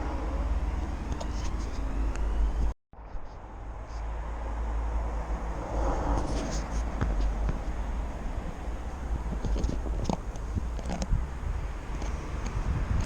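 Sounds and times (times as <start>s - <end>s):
wind on microphone: 4.9s - 13.0s.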